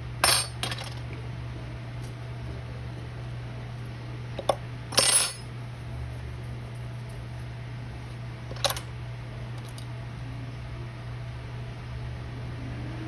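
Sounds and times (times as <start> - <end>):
steady low hum: 0.0 - 13.0
metal tools clinking on surface: 0.2 - 1.0, 4.9 - 5.5
metal tools rattling: 0.2 - 1.0, 4.4 - 5.5, 8.5 - 8.9.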